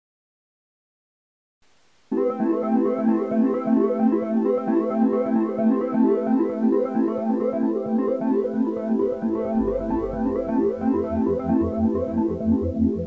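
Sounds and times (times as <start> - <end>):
synthesizer keyboard tune: 2.1 - 13.0
low bass line: 9.0 - 13.0.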